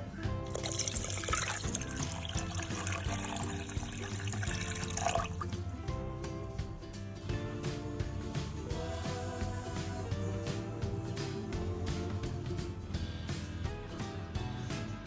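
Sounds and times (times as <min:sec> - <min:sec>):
background music: 0:00.0 - 0:15.0
water running: 0:00.4 - 0:06.7.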